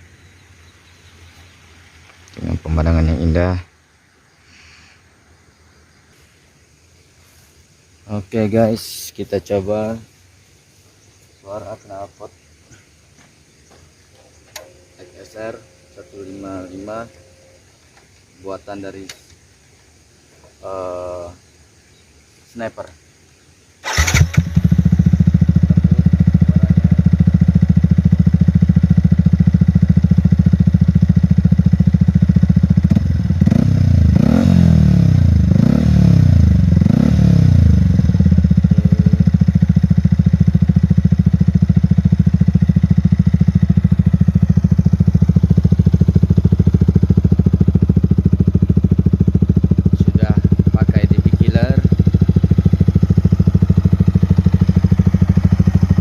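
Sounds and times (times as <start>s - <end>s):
motorcycle engine idling: 0.0s - 3.6s, 8.1s - 21.8s, 23.8s - 56.0s
motorcycle engine revving: 23.8s - 56.0s.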